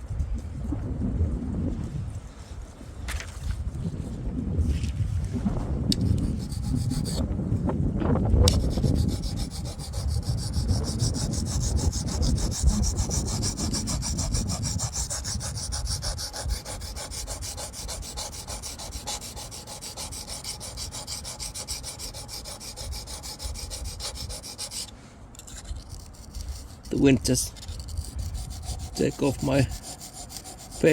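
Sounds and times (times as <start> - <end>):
wind rumbling on microphone: 0.0 - 30.9
knife scraping on sharpening stone: 8.5 - 30.9.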